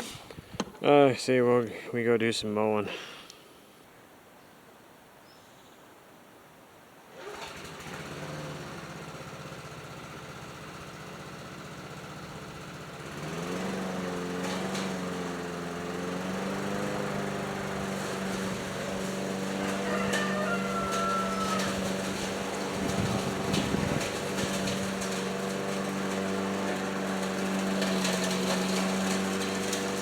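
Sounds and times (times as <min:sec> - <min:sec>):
small gasoline engine running: 0:07.1 - 0:30.0.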